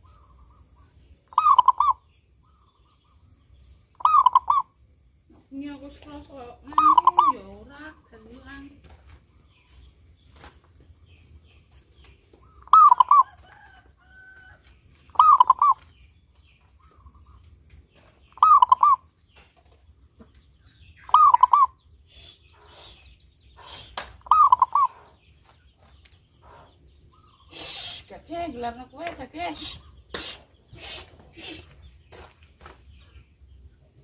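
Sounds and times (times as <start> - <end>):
dove cooing: 1.4 - 2.0, 4.0 - 4.6, 6.7 - 7.5, 12.5 - 13.8, 15.1 - 15.8, 18.4 - 19.0, 21.1 - 23.0, 23.6 - 25.2.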